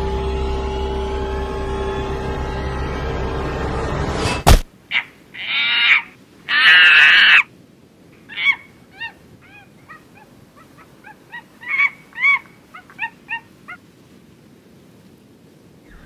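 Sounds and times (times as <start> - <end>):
high arching animal calls: 4.9 - 7.5, 8.2 - 13.8.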